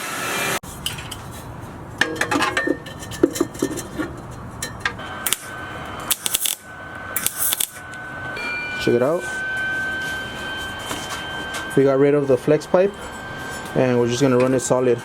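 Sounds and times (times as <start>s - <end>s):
metal pipes clanking: 0.6s - 5.5s.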